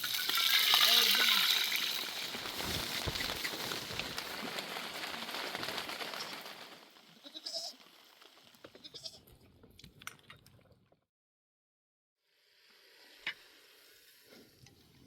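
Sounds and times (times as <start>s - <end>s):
short bleat: 7.2s - 7.8s, 8.8s - 9.2s.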